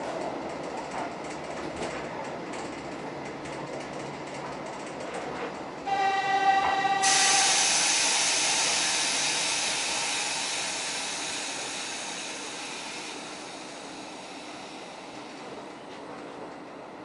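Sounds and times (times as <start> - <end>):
train pitched tone: 5.8 - 15.7
loud hiss of air: 5.9 - 15.6.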